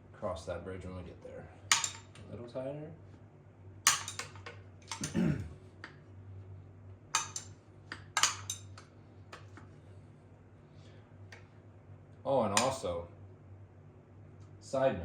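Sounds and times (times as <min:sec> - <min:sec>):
metal tools clinking on engine: 0:01.7 - 0:02.2, 0:03.9 - 0:05.3, 0:07.2 - 0:08.8.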